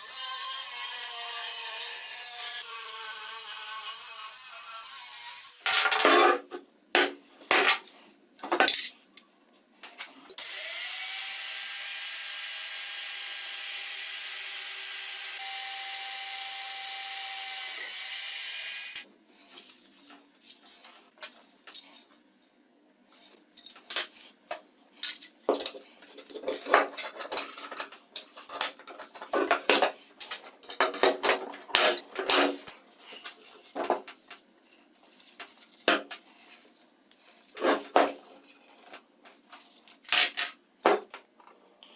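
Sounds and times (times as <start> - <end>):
power tool spinning: 10.4 - 19.1.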